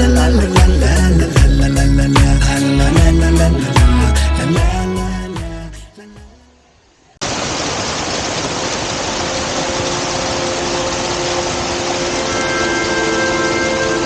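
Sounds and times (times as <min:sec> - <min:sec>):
song: 0:00.0 - 0:06.5, 0:11.2 - 0:14.0
waterfall rushing: 0:07.2 - 0:14.0
faint steady tones: 0:09.5 - 0:14.0.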